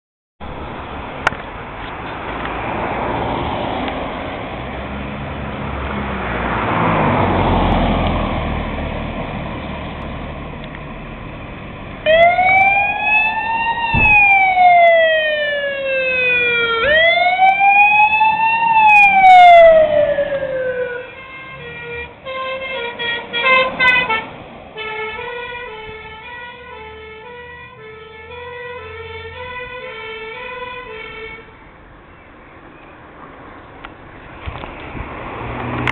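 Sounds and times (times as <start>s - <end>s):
vehicle passing: 0.4s - 35.9s
fire engine siren wailing: 11.9s - 31.6s.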